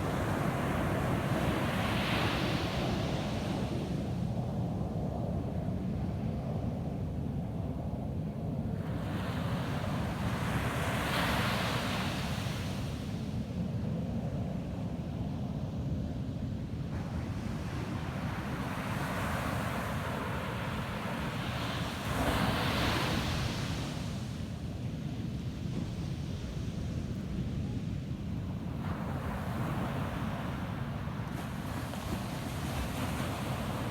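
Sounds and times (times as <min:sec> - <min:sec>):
wind rumble on microphone: 0:00.0 - 0:33.9
ocean waves breaking on beach: 0:16.9 - 0:24.7, 0:28.6 - 0:33.9.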